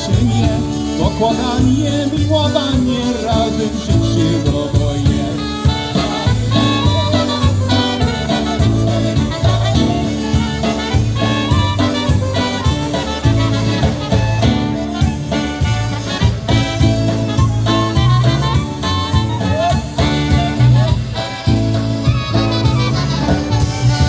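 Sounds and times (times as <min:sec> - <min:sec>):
bass and drum beat: 0:00.0 - 0:24.0
horns: 0:00.0 - 0:24.0
polka band playing: 0:00.0 - 0:24.0.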